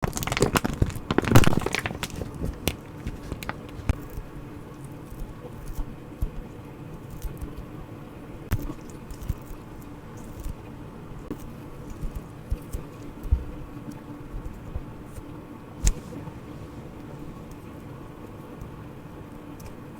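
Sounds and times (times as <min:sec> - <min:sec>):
squishy toy being squeezed: 0:00.0 - 0:04.0
small clicks and crackles: 0:00.0 - 0:19.9.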